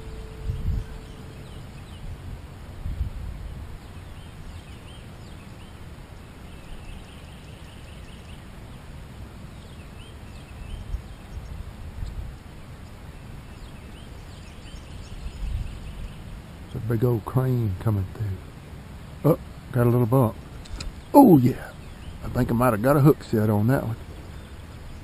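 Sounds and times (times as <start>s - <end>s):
steady low rumble: 0.0s - 6.5s
birds chirping: 0.0s - 25.0s.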